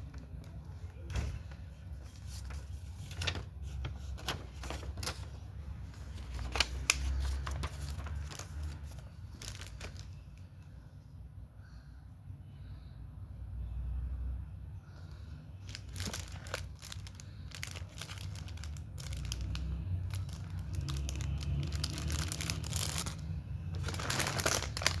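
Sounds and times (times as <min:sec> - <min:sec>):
low rumble of handling noise: 0:00.0 - 0:11.0, 0:14.8 - 0:25.0
candy wrapper crackling: 0:06.0 - 0:10.3, 0:15.6 - 0:25.0.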